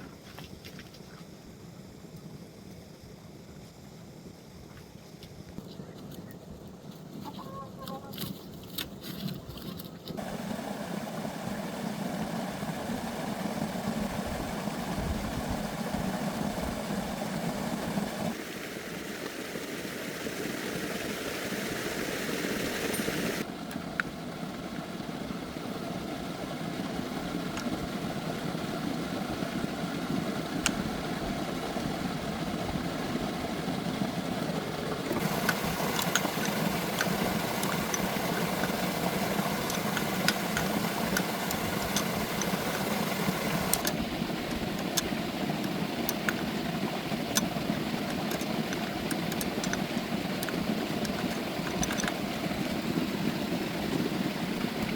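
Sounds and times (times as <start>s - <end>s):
engine running: 10.2s - 54.9s
metallic clicks and ticks: 35.1s - 46.5s, 47.3s - 52.2s.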